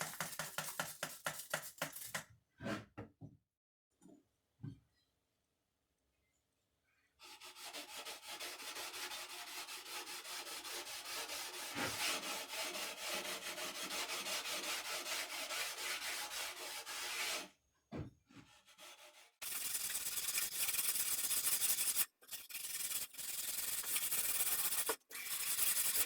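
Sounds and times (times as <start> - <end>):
hand rubbing with abrasive: 19.4 - 26.0.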